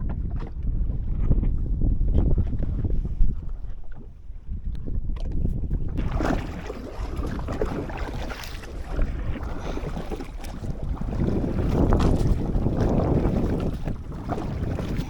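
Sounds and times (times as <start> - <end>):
wind buffeting microphone: 0.0 - 15.0
water splashing at hull: 2.1 - 15.0.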